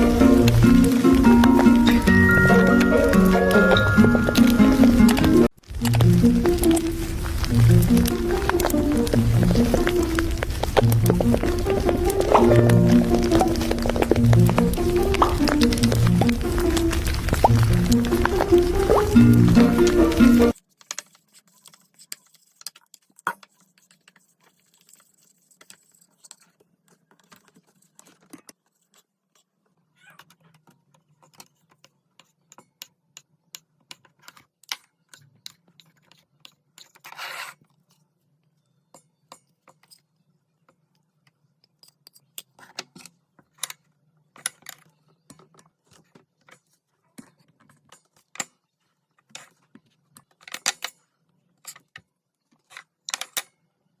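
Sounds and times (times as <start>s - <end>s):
scraping rustle: 5.7s - 20.0s.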